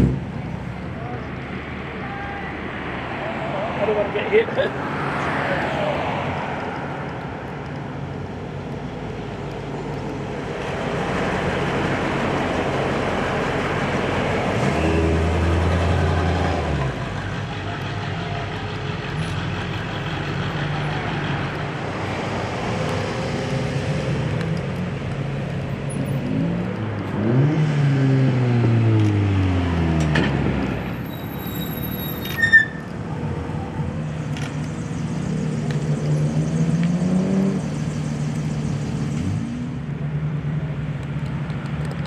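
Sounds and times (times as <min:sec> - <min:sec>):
car engines driving past: 0:00.0 - 0:42.0
engine revving: 0:10.6 - 0:17.1, 0:26.0 - 0:30.9, 0:34.3 - 0:39.9.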